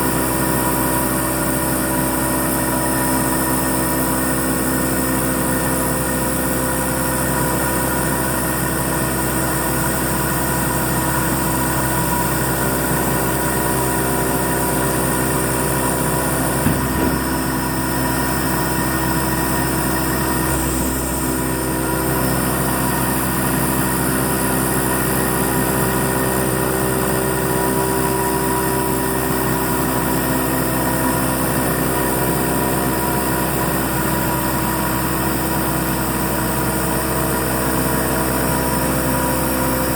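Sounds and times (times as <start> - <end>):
milling machine humming and whining: 0.1 - 39.9
brief knock: 16.6 - 17.8.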